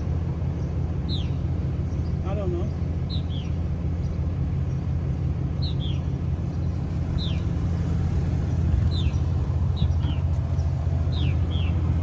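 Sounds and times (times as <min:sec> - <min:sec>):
vehicle engine idling: 0:00.0 - 0:12.0
bird chirping: 0:00.6 - 0:04.9, 0:05.6 - 0:07.6, 0:08.8 - 0:12.0.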